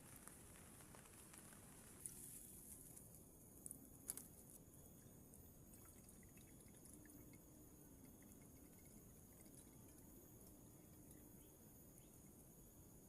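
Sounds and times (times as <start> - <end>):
rain dripping: 0.0 - 2.0.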